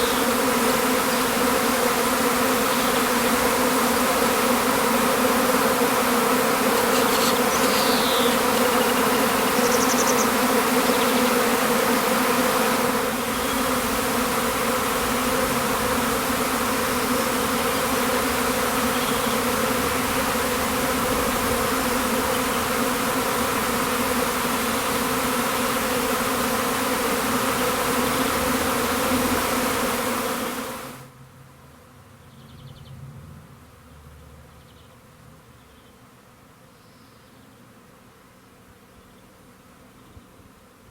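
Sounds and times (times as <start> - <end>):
bees buzzing: 0.0 - 31.1.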